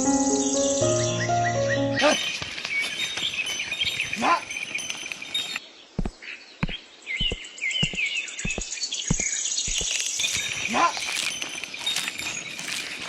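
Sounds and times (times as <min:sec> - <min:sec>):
birds chirping: 0:00.0 - 0:13.0
sharp irregular knocks: 0:06.0 - 0:10.5.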